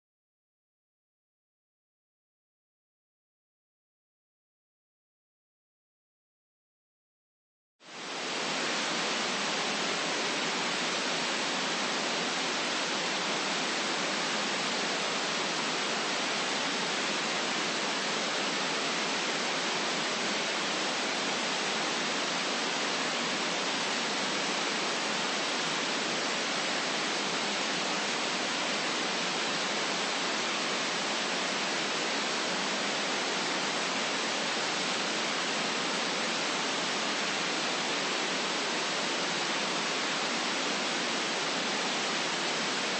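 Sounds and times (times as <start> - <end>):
white noise hiss: 7.8 - 42.9.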